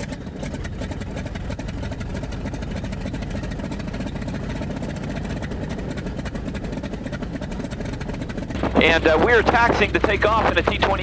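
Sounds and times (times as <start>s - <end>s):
radial engine idling: 0.0s - 11.0s.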